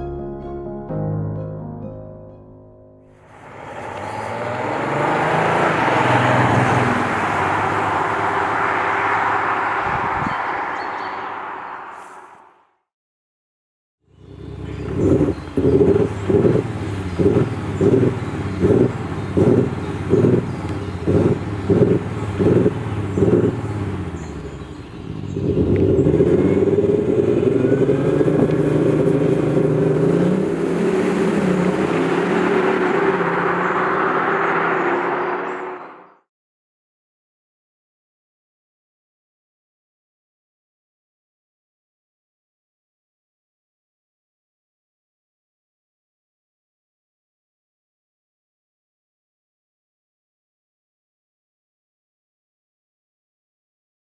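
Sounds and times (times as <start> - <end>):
car engine accelerating: 3.1 - 12.6, 14.1 - 36.2
road and wind noise: 3.1 - 12.8, 14.1 - 36.3
tyre and wind noise: 9.7 - 10.6.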